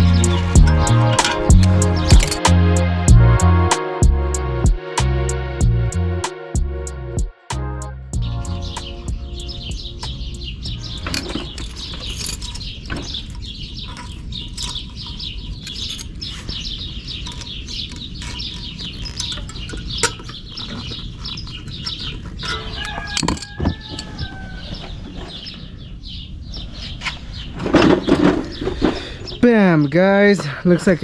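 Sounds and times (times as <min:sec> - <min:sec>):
small birds chirping: 0:08.2 - 0:31.0.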